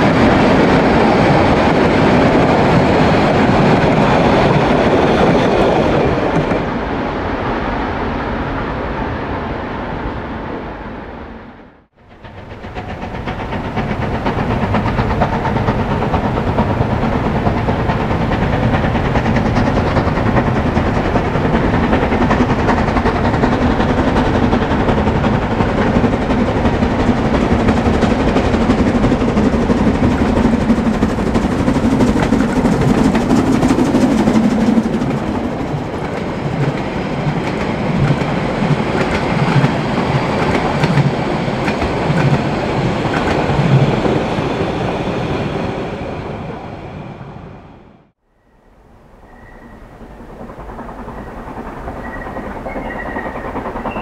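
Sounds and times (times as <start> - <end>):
train rumbling: 0.0 - 54.0
wheels clattering on track: 12.1 - 44.2.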